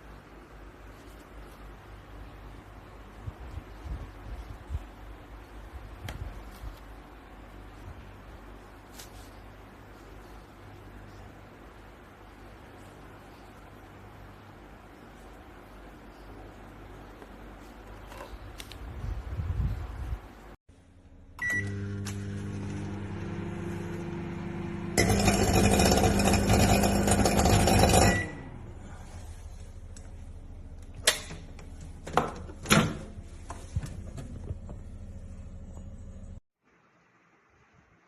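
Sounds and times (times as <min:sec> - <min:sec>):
microwave oven humming: 0:20.7 - 0:36.4
short beep: 0:21.4 - 0:21.8.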